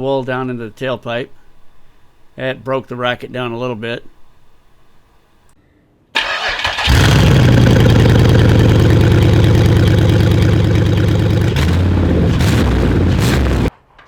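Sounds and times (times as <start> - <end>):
starter cranking: 6.2 - 13.3
loud engine running: 6.5 - 13.7.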